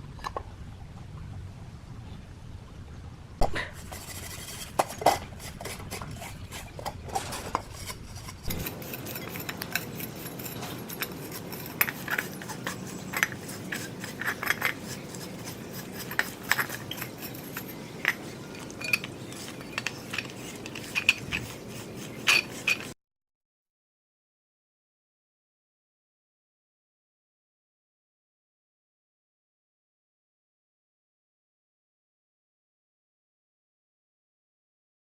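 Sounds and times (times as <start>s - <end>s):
metal parts clinking: 3.7s - 22.9s.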